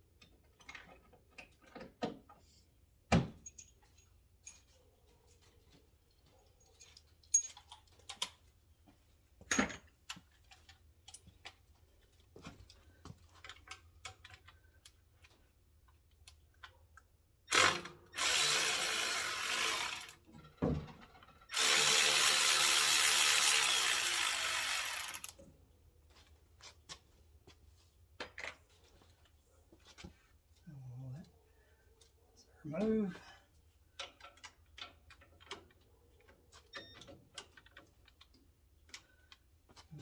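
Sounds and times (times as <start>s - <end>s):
tools clinking and knocking: 3.1s - 4.8s, 6.6s - 8.4s, 9.4s - 11.6s
handheld power tool running: 17.5s - 20.2s, 21.5s - 25.4s.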